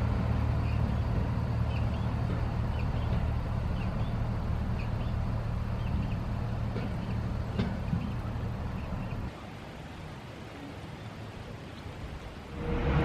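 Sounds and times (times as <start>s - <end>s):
locomotive diesel engine humming: 0.0s - 9.3s.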